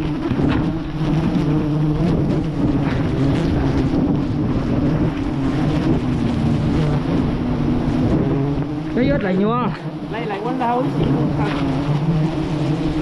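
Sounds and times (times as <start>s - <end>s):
bees buzzing: 0.0s - 13.0s
wind rumbling on microphone: 0.0s - 13.0s.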